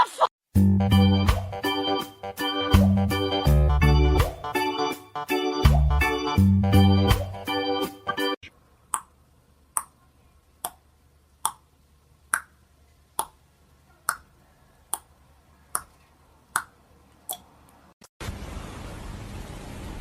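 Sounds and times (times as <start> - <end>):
keyboard music: 0.6 - 8.4.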